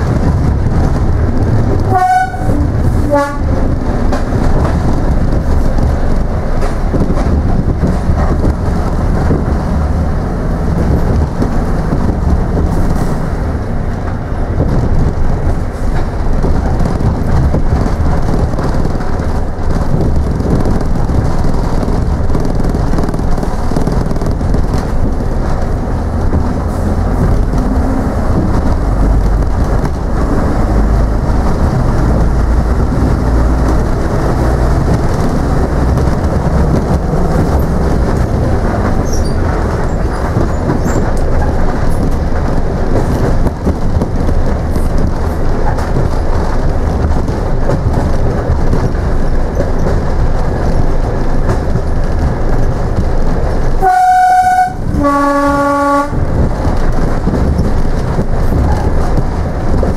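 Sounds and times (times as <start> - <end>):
train rumbling: 0.0 - 59.9
train horn: 1.8 - 3.7, 53.8 - 56.2.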